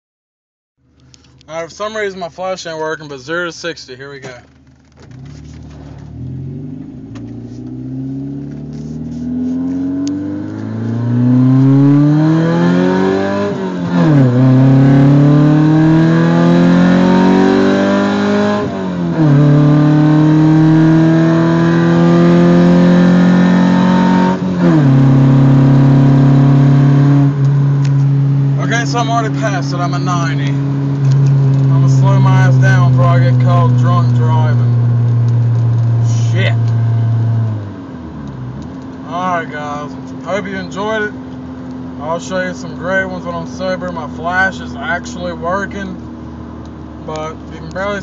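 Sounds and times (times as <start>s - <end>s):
car engine accelerating: 0.8s - 48.0s.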